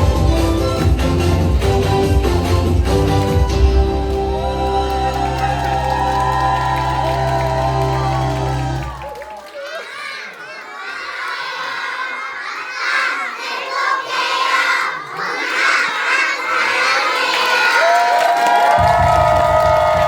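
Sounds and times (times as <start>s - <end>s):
children shouting and cheering: 4.2s - 20.0s.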